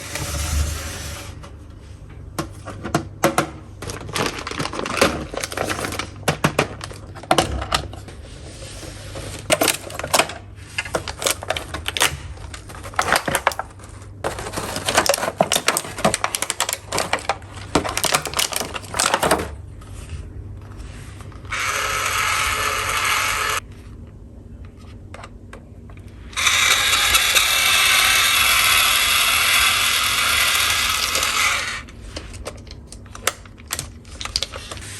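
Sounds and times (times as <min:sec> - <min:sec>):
toy drill motor running: 0:21.5 - 0:23.6, 0:26.2 - 0:31.9
plastic toy tools clicking: 0:26.4 - 0:31.8.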